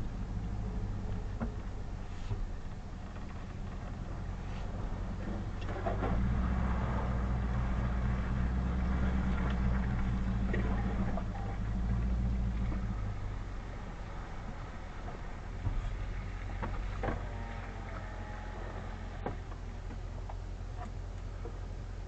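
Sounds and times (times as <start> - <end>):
light rattles: 0.0 - 21.9
vehicle engine running: 0.0 - 22.0.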